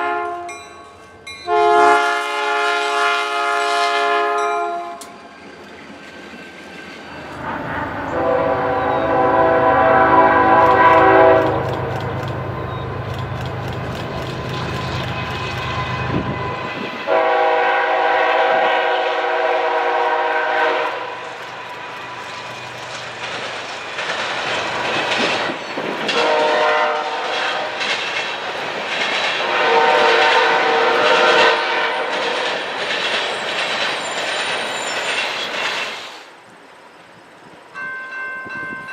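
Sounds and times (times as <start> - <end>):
locomotive air horn blasts: 0.0 - 0.6, 1.5 - 5.0, 7.3 - 11.9, 15.1 - 22.0, 26.1 - 27.8, 29.4 - 32.3
locomotive engine rumble: 7.0 - 18.7
wheels clicking on rail joints: 10.5 - 17.1, 20.8 - 38.9.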